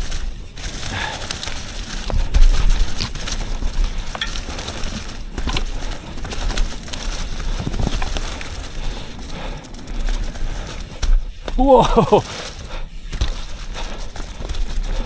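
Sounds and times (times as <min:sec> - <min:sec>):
wind rumbling on microphone: 0:00.0 - 0:11.9
bike clicks and rattles: 0:00.0 - 0:15.0
tyres crunching on dirt: 0:00.0 - 0:15.0.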